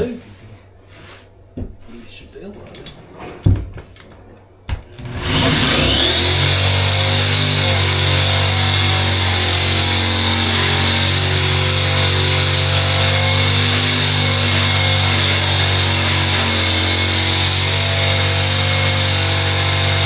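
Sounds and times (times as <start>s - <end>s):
power grinder whining: 4.8s - 20.0s.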